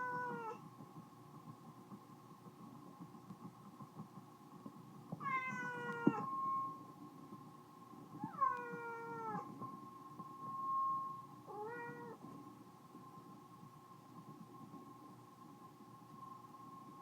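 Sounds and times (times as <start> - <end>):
steady high-pitched tone: 4.6 - 17.0
cat meowing: 5.2 - 6.3, 8.3 - 9.5, 11.5 - 12.2.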